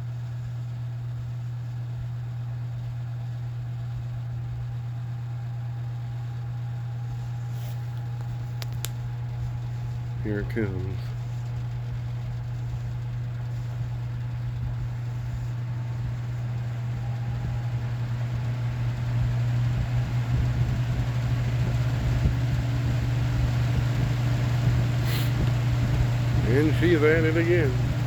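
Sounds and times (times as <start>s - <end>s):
box fan humming: 0.0s - 28.0s
click: 7.9s - 9.0s.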